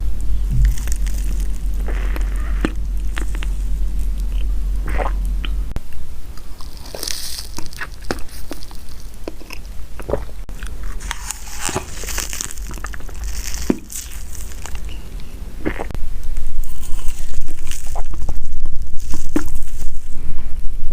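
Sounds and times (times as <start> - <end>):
low hum: 0.0 - 17.5
person chewing crunchy snacks: 0.5 - 3.6, 6.6 - 15.9.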